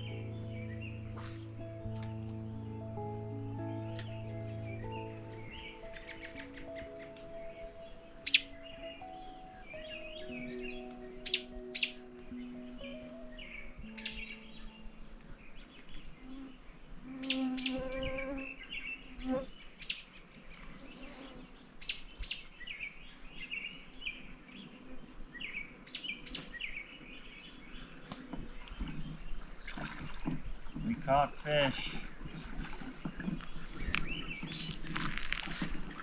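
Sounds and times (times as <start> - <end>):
small birds chirping: 3.7 - 35.6.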